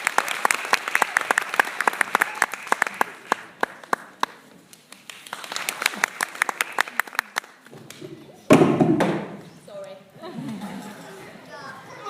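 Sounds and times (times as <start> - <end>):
small audience clapping: 0.0 - 8.2.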